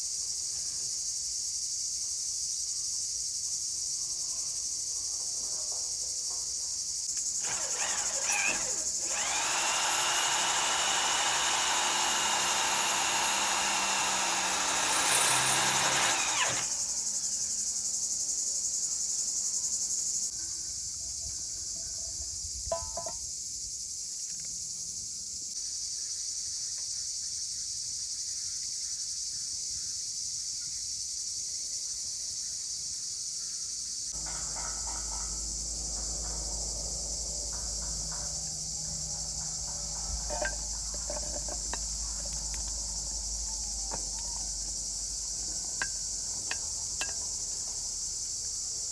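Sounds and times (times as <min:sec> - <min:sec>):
crickets chirping: 0:00.0 - 0:48.9
whining motor: 0:07.2 - 0:17.8, 0:34.2 - 0:47.2.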